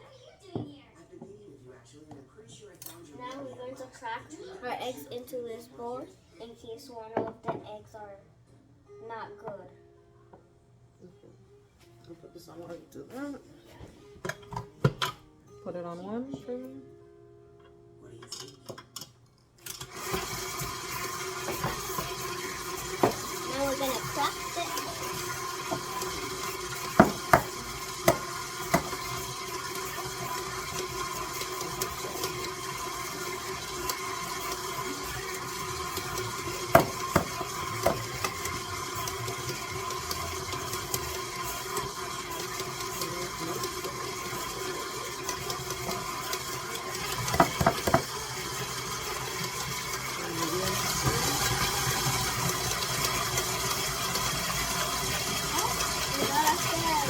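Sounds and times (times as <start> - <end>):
electric mixer humming: 19.7 - 57.0
eggs knocking on bowl rim: 26.8 - 29.1, 36.7 - 38.4, 47.3 - 48.1.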